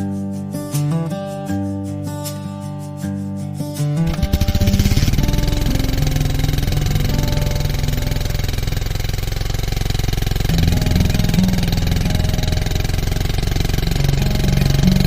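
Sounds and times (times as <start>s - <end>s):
motorcycle engine running: 4.1s - 15.0s.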